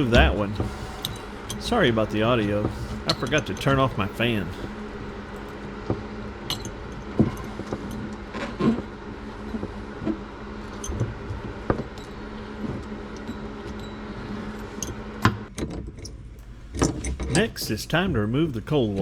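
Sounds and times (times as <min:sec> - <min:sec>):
electric fan humming: 0:00.0 - 0:05.5, 0:16.4 - 0:19.0.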